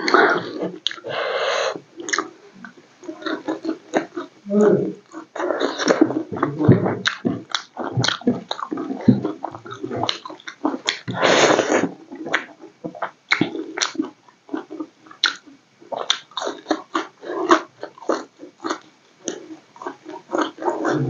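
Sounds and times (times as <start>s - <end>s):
wet smacking chewing: 0.0s - 1.0s, 2.0s - 4.3s, 5.0s - 21.0s
noisy crunch: 0.0s - 21.0s.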